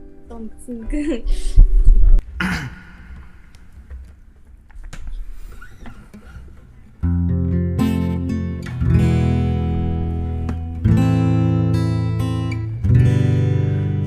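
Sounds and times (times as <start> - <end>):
acoustic guitar strumming: 5.3 - 14.0.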